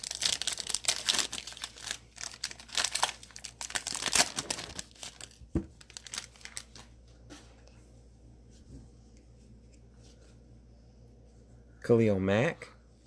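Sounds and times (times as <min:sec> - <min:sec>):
plastic wrapper tearing and crinkling: 0:00.0 - 0:06.9.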